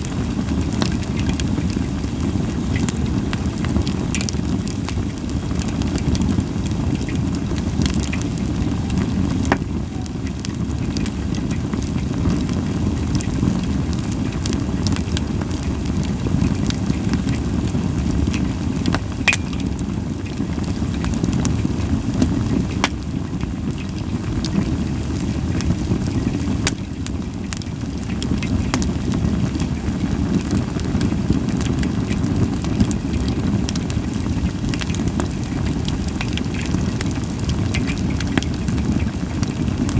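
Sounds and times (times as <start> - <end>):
fire rumbling: 0.0 - 39.9
firewood crackling and popping: 0.0 - 39.9.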